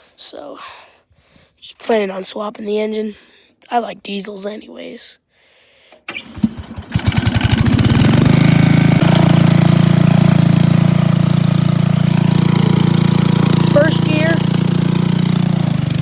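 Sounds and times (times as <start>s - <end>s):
garden tractor engine starting: 5.9s - 16.0s.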